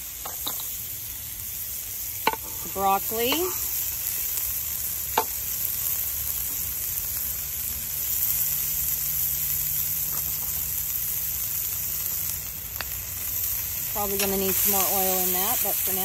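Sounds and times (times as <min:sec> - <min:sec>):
vegetables sizzling in a skillet: 0:00.0 - 0:16.0.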